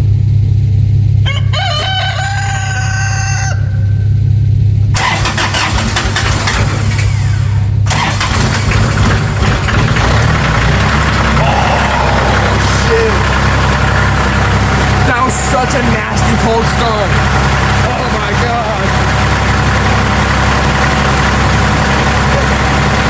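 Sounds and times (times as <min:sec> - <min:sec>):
steady low hum: 0:00.0 - 0:23.0
tractor diesel engine cold start: 0:00.0 - 0:23.0
rooster crowing: 0:01.2 - 0:04.3, 0:11.2 - 0:15.0.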